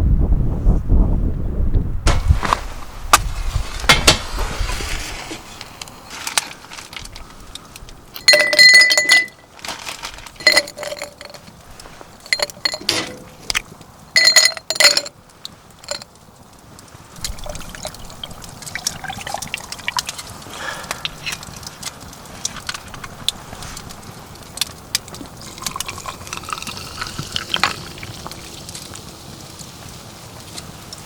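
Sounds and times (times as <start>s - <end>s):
wind rumbling on microphone: 0.0s - 5.7s
hard objects clinking: 8.2s - 13.6s, 14.2s - 15.2s, 15.8s - 16.1s.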